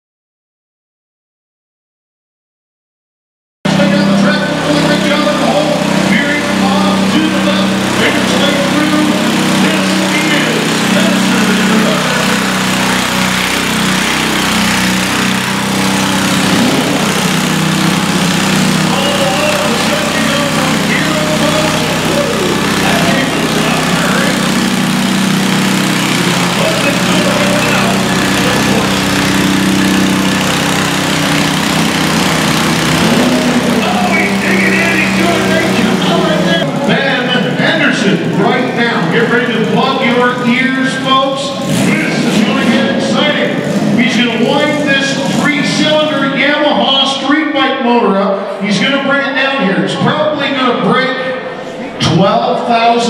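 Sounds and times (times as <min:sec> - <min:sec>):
lawn tractor engine running: 0:03.7 - 0:47.6
faint voices: 0:18.9 - 0:24.6, 0:26.1 - 0:29.1, 0:33.2 - 0:43.4.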